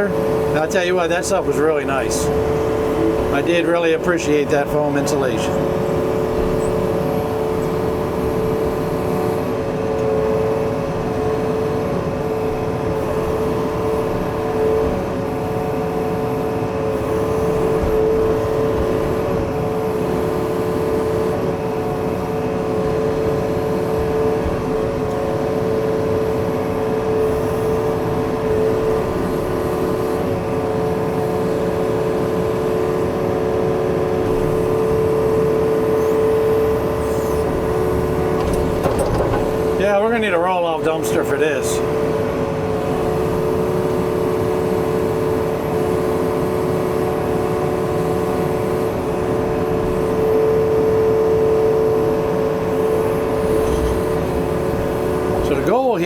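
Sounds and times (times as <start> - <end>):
diesel engine running: 0.0 - 56.0
steady whine: 52.9 - 56.0.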